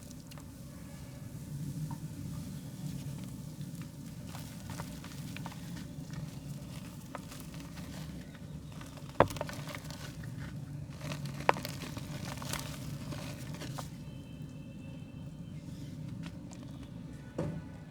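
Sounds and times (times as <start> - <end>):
mud crumbling by hand: 2.8 - 14.4.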